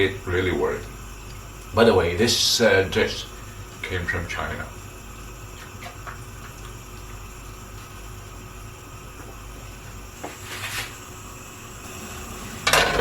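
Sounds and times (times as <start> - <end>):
pot simmering hiss: 0.0 - 13.0
hissy rustle: 5.2 - 12.3.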